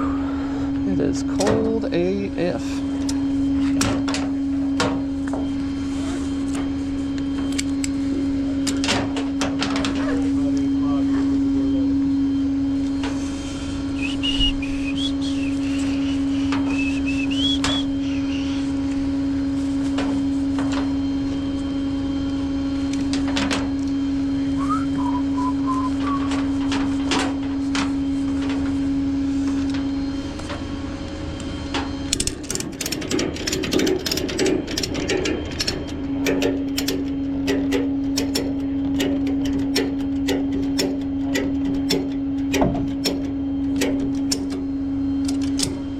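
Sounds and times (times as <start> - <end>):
machinery humming: 0.0 - 45.9
high whistle-like chirps: 13.9 - 18.7, 24.5 - 26.3
sharp clicks and knocks: 32.1 - 44.6.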